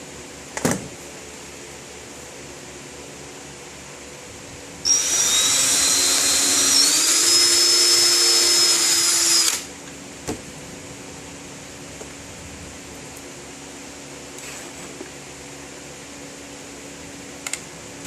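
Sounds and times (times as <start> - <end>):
power drill whine: 4.9 - 9.7.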